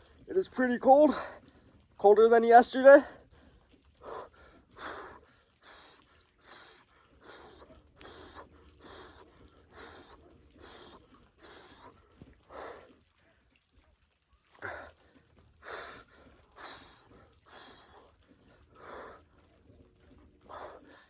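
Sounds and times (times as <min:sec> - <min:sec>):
man breathing fast and hard: 0:03.0 - 0:13.1, 0:14.6 - 0:21.0.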